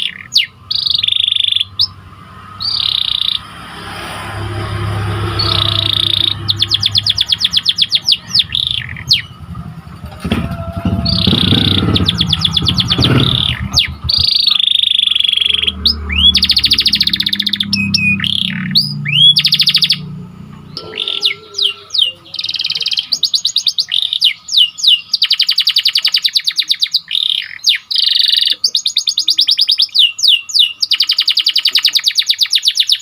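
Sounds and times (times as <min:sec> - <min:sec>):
canary singing trills: 0:00.0 - 0:33.0
low background rumble: 0:04.6 - 0:22.0.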